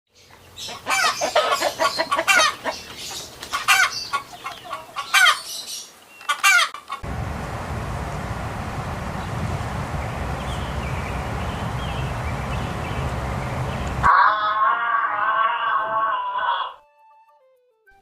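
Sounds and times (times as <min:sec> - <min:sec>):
chickens clucking and cackling: 0:00.3 - 0:07.1
steady rushing noise: 0:07.0 - 0:14.1.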